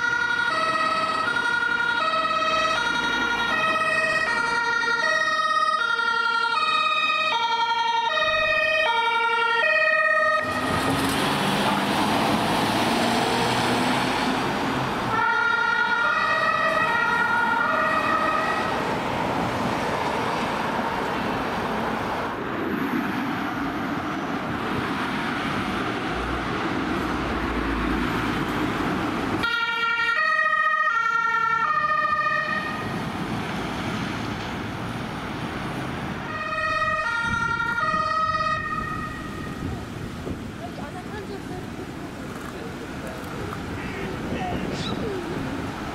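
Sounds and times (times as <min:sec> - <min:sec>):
two-tone emergency siren: 0:00.0 - 0:10.9, 0:15.1 - 0:18.9, 0:29.4 - 0:33.1, 0:36.3 - 0:39.8
passing traffic: 0:00.0 - 0:45.9.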